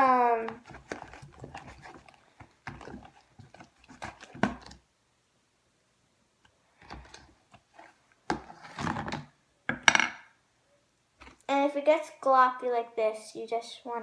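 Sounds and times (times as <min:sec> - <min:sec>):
slime squishing by hand: 0:00.0 - 0:04.8.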